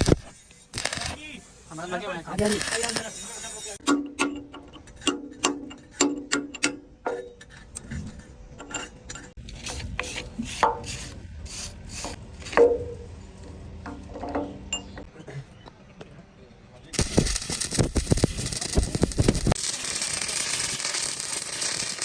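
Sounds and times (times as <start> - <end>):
metal scraping strokes: 0.0 - 3.8.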